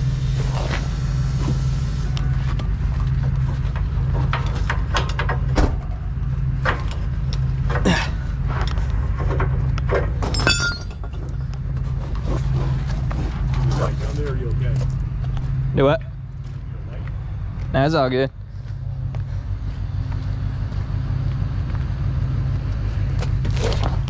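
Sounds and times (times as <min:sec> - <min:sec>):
truck engine idling: 0:00.0 - 0:24.0
ringing metallic clinks: 0:10.3 - 0:11.4.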